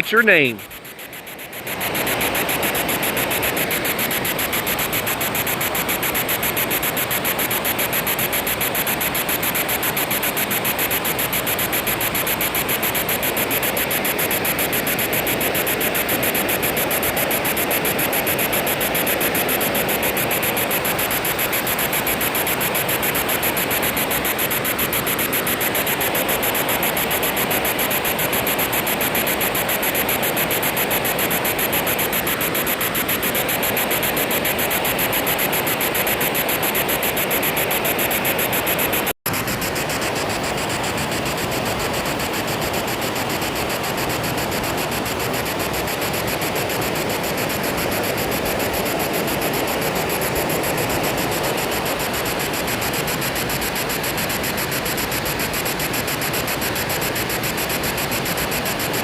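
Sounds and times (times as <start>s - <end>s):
chopped radio static: 0.0s - 0.7s.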